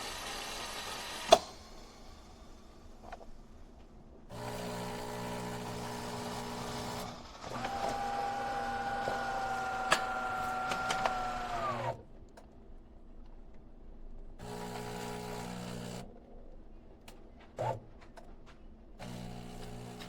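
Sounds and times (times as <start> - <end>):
espresso machine hum: 4.3 - 11.9, 14.4 - 16.1, 19.0 - 20.0
motor whine: 4.3 - 12.0.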